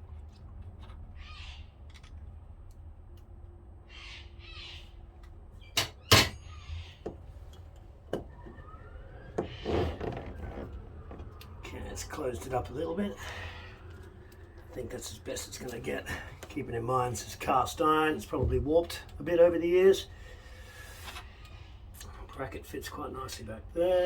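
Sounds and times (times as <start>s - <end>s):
metal tools clinking and knocking: 5.8s - 6.6s.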